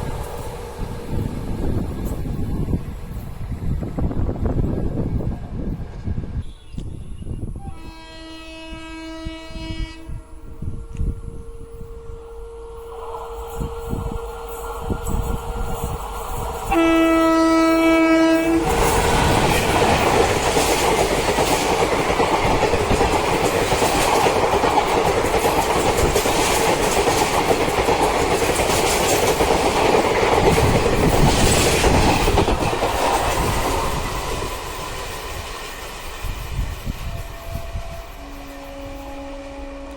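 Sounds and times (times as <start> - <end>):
train wheels on rails: 0.0 - 39.9
train horn blast: 6.4 - 15.2, 16.6 - 19.5, 36.9 - 39.9.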